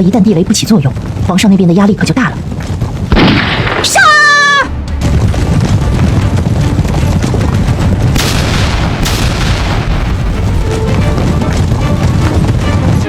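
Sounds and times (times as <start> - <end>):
rumble of explosions: 0.0 - 13.0
sharp explosions: 3.1 - 4.0, 8.1 - 11.4.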